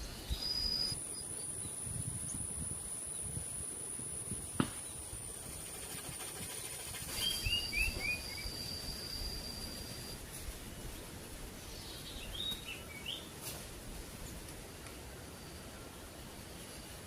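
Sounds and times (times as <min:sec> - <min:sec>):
high insect whine: 0:00.0 - 0:10.2
lower insect tone: 0:00.0 - 0:10.3, 0:15.1 - 0:17.0.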